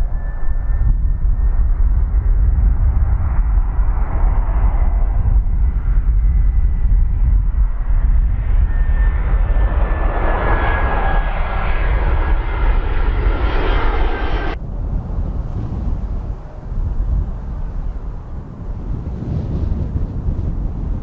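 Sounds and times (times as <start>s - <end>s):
jet airliner passing: 0.0s - 21.0s.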